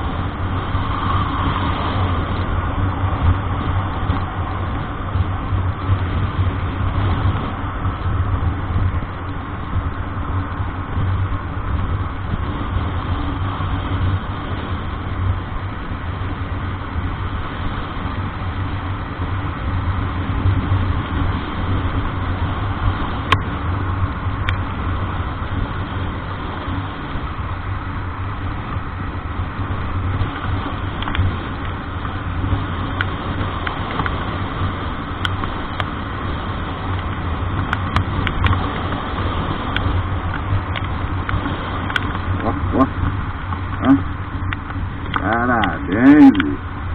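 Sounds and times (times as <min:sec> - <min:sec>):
road noise: 0:00.0 - 0:46.9
vehicle engine humming: 0:00.0 - 0:46.9.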